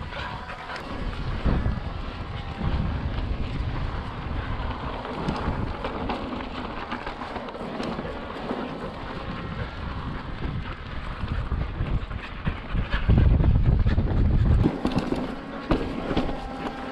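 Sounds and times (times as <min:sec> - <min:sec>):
bike clicks and rattles: 0:00.0 - 0:16.9
bike tyres rumbling on rock: 0:00.0 - 0:16.9
wind buffeting microphone: 0:00.0 - 0:16.9.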